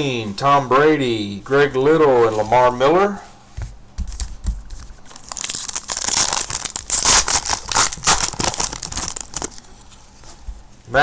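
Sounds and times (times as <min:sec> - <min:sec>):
plastic wrapper crinkling and tearing: 0:05.0 - 0:10.3.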